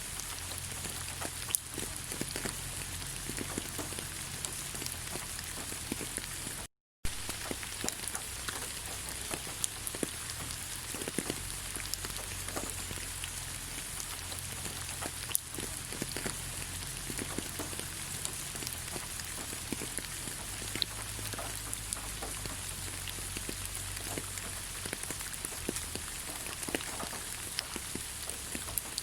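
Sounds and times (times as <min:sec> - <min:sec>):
rain falling on leaves: 0:00.0 - 0:29.0.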